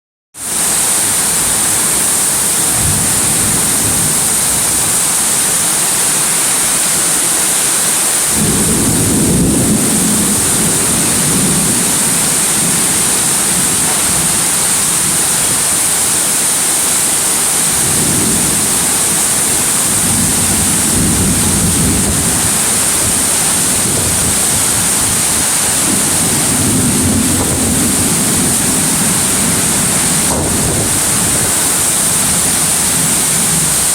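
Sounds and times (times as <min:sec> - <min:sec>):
heavy rain pouring: 0:00.4 - 0:33.9
deep rumbling: 0:17.9 - 0:33.8.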